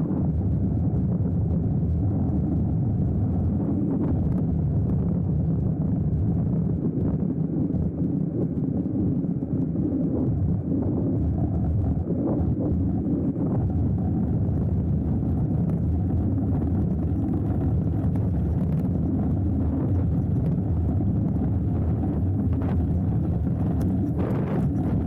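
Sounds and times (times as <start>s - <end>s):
wind noise: 0.0s - 25.0s
bike tyre rumble on dirt: 14.0s - 25.0s.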